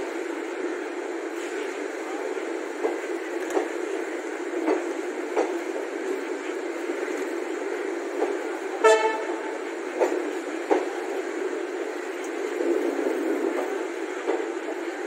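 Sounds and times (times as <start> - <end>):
train coaches rumbling: 0.0 - 15.0
train horn blast: 8.8 - 9.6.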